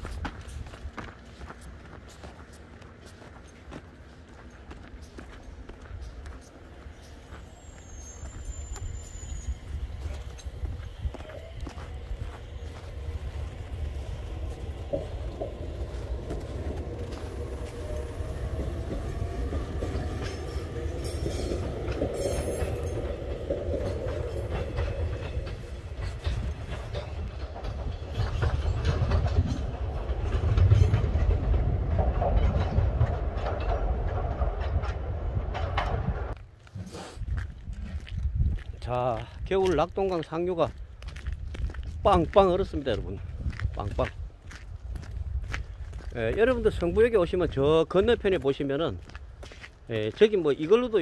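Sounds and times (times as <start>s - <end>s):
wheels clattering over rail joints: 0.0s - 36.4s
train rumbling: 0.0s - 51.0s.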